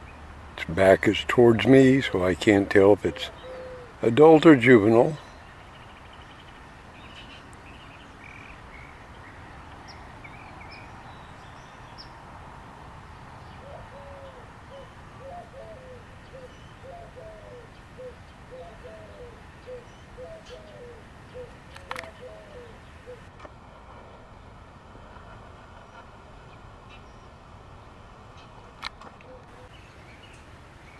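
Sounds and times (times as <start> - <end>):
birds chirping: 0.0 - 12.3, 12.9 - 23.3, 29.5 - 30.9
steady background noise: 0.0 - 30.9
bird calling low notes: 0.6 - 5.4, 13.6 - 23.3.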